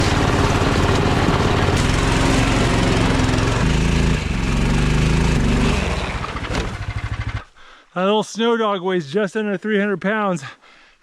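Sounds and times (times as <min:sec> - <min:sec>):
small single-cylinder engine running: 0:00.0 - 0:07.5.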